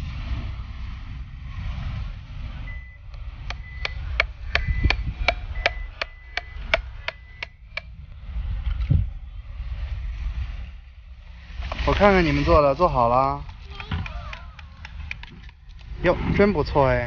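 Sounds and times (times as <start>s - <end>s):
wind rumble on microphone: 0.0s - 17.0s
hammer driving nail into wood: 3.5s - 7.9s.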